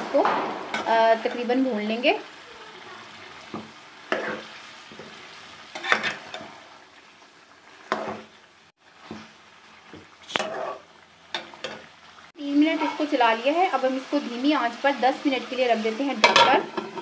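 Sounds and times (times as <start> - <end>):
chicken sizzling in pan: 0.0 - 17.0
spoon scraping a pan: 3.5 - 6.6, 7.8 - 8.3, 10.0 - 11.9, 16.1 - 17.0.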